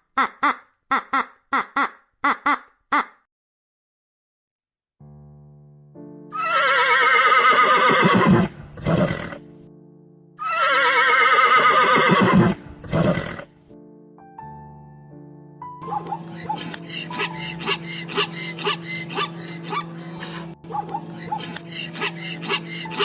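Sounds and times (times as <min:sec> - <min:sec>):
soft background music: 0:05.1 - 0:23.0
quavering animal calls: 0:15.9 - 0:23.0.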